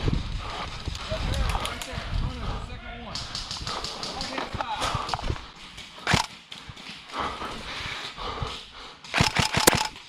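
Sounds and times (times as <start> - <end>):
airsoft guns firing: 6.0 - 6.4, 9.1 - 10.0.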